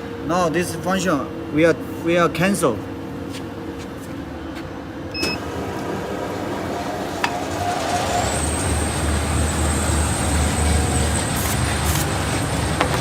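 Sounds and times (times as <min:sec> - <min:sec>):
tape machine running with whine: 0:05.1 - 0:13.0.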